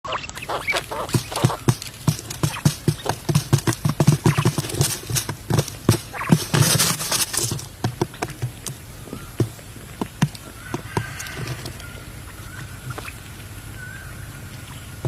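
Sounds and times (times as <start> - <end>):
rapid irregular knocking: 0.7 - 11.6.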